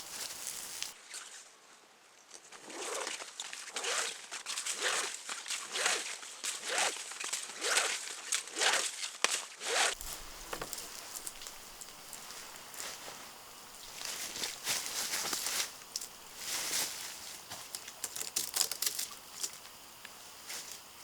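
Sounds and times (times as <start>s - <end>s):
footsteps crunching through dry leaves: 0.0s - 1.0s, 10.0s - 19.6s.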